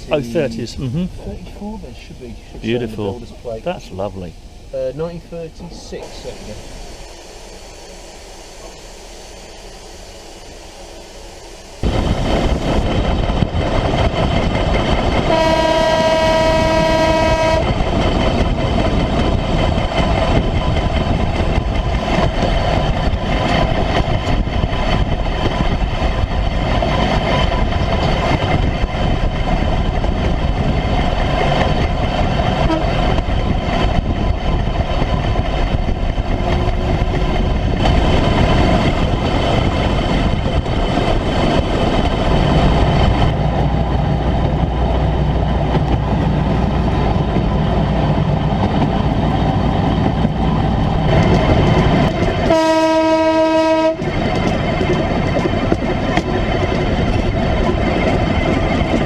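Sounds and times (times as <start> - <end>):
wheels on rail: 1.2 - 59.0
single-note horn: 15.3 - 17.7, 32.7 - 32.9, 52.5 - 54.0.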